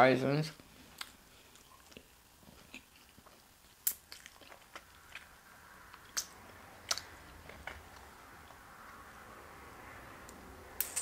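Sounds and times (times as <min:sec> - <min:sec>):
chewing mouth noises: 0:00.9 - 0:08.6.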